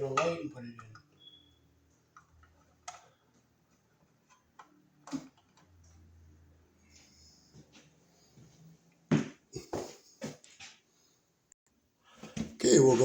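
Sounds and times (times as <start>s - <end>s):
clicks and taps on wiring: 0.1s - 6.0s.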